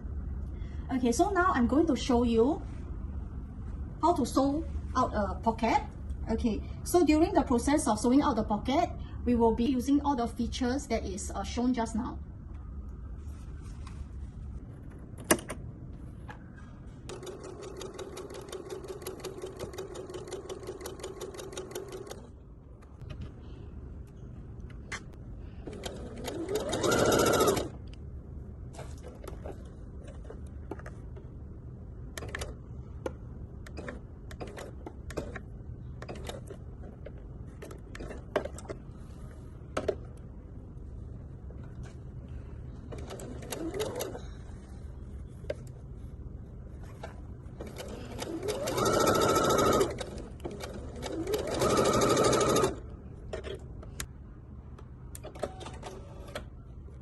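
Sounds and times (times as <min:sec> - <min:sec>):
sewing machine stitching: 0:25.7 - 0:27.8, 0:47.6 - 0:52.8.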